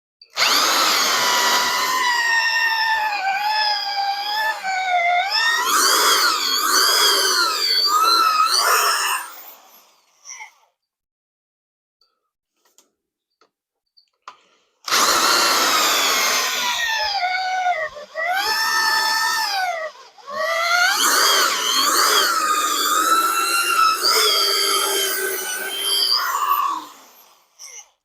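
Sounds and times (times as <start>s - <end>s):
drill whining under load: 0.2s - 10.5s, 14.8s - 28.0s.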